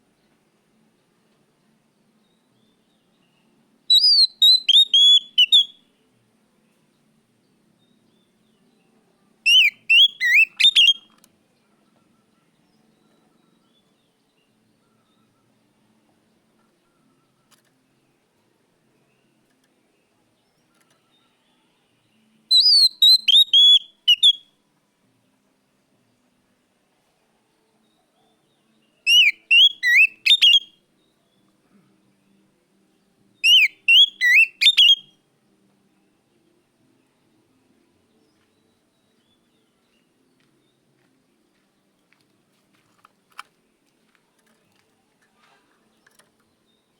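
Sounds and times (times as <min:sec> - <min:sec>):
magpie-robin whistled song: 0:02.2 - 0:05.9, 0:09.4 - 0:11.2, 0:22.5 - 0:24.6, 0:27.9 - 0:31.4, 0:33.4 - 0:35.2.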